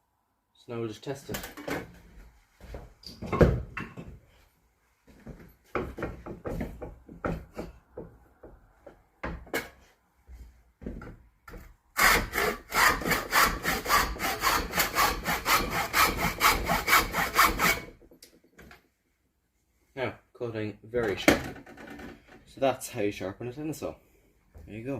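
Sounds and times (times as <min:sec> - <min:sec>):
saw cutting wood strokes: 0:12.0 - 0:17.9.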